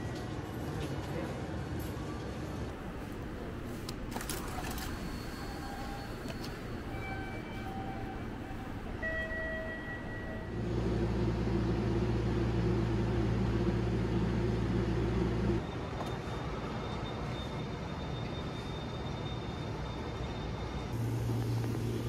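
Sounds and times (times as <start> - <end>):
train humming: 2.0 - 16.8, 19.7 - 22.0.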